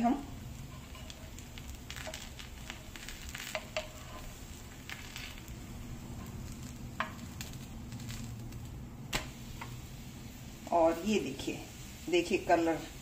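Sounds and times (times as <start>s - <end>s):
dosa sizzling on a griddle: 0.0s - 13.0s
wooden spatula clicking and scraping: 0.5s - 8.7s.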